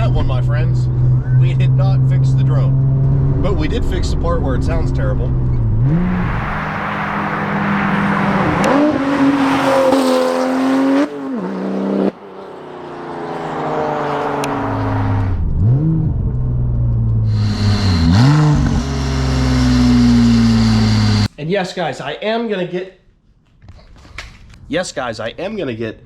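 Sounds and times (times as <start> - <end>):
car engine revving: 0.0 - 21.3.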